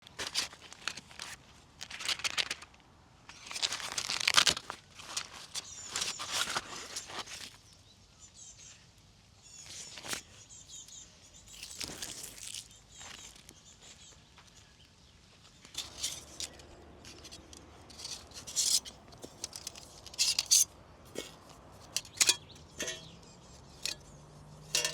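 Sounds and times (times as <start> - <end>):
rustling and crinkling handling noise: 0.0 - 7.9, 11.5 - 24.9
small birds chirping: 5.6 - 24.9.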